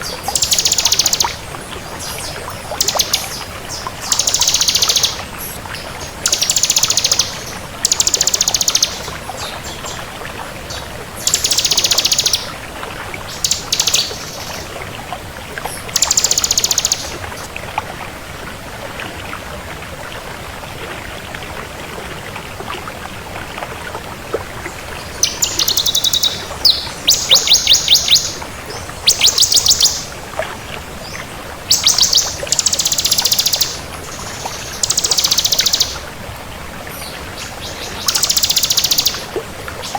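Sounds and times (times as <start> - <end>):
background hiss: 24.7 - 30.3
bird singing fast high trill: 25.2 - 28.4, 29.0 - 30.1, 38.1 - 39.2.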